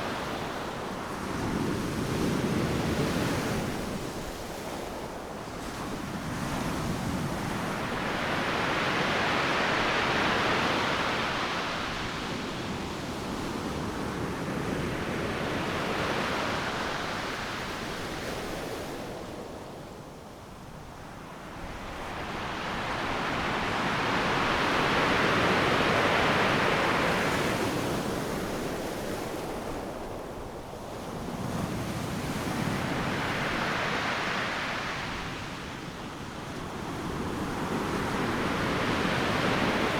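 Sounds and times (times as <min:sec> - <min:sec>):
ocean waves breaking on beach: 0:21.3 - 0:39.9.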